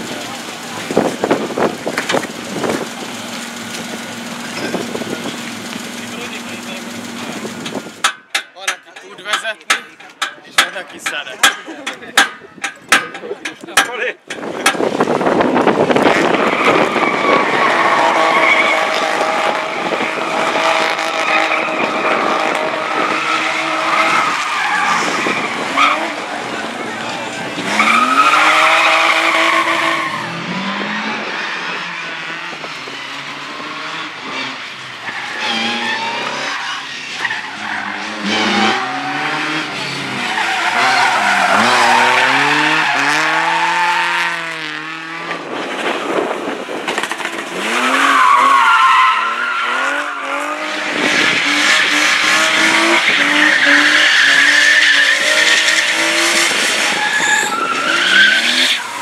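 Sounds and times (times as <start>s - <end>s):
car engine revving: 0.0s - 8.0s, 14.8s - 59.0s
tyres squealing: 22.7s - 30.3s, 35.0s - 44.2s, 47.7s - 59.0s.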